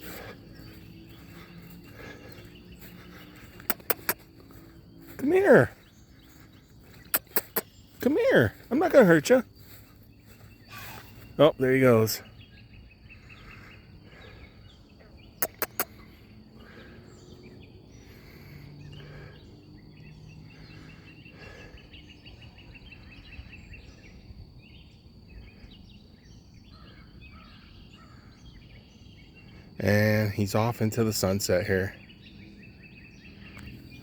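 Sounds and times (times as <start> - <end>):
bird trill: 0.0 - 18.1
bird chirps: 0.0 - 34.0
sharp clicks: 3.6 - 4.2, 7.0 - 7.7, 15.4 - 15.9.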